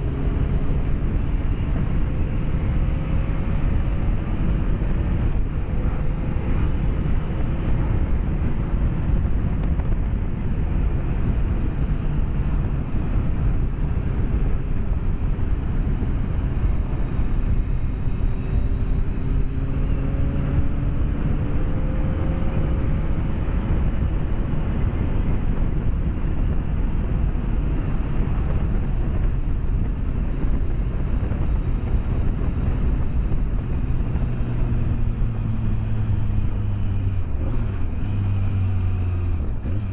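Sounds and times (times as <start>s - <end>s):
motorcycle engine: 0.0s - 39.9s
wind rush: 0.0s - 39.9s.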